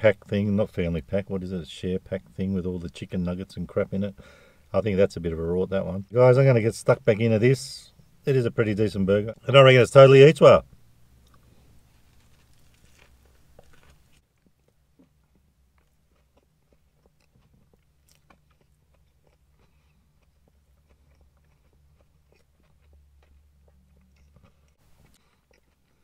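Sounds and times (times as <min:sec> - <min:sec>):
low steady hum: 0:00.0 - 0:26.0
mouth clicks and crunches: 0:11.2 - 0:26.0
chewing crispy burger: 0:11.3 - 0:26.0.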